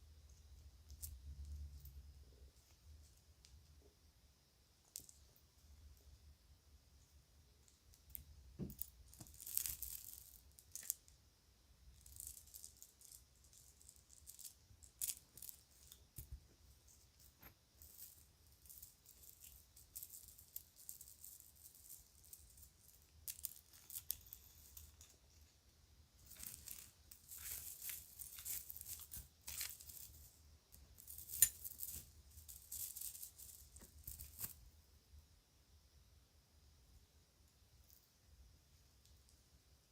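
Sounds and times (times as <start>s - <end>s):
jewelry rattling and clinking: 11.9s - 25.2s, 26.2s - 34.6s.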